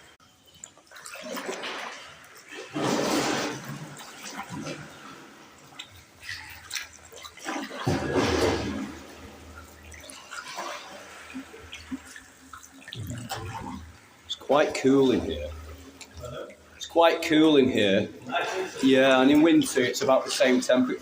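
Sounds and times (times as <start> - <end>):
water dripping: 0.0 - 2.7, 3.5 - 21.0
paddle swishing and splashing: 0.7 - 16.4.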